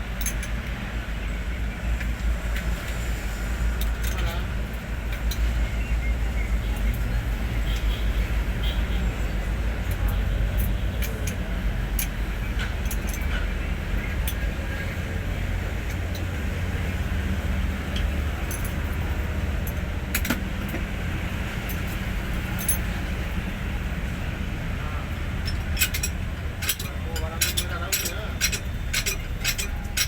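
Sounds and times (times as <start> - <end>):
diesel truck engine rumble: 0.0 - 30.0
sharp clicks and rattles: 9.7 - 14.7, 25.3 - 30.0.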